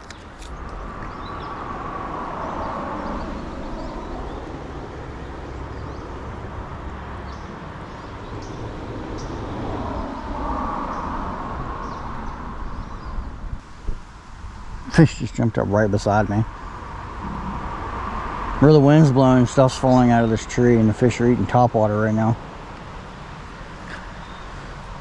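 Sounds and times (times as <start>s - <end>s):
outdoor background noise: 0.0s - 25.0s.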